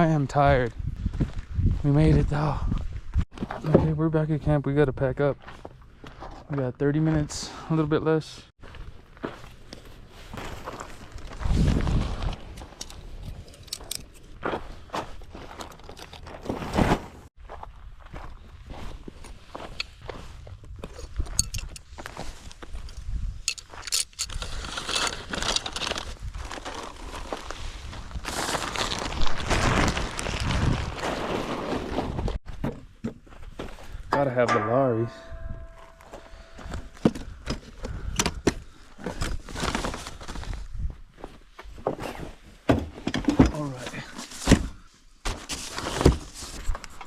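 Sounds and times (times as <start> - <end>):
rustling and scraping: 9.4 - 17.3
camping gear knocking and clattering: 12.4 - 17.2, 20.8 - 26.0, 32.4 - 39.9, 42.6 - 47.0
gear clinking and knocking: 23.4 - 25.6.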